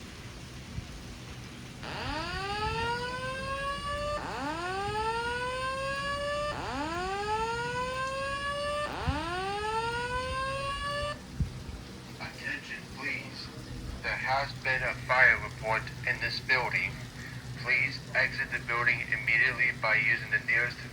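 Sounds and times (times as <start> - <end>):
fire alarm whoop tone: 1.8 - 11.4.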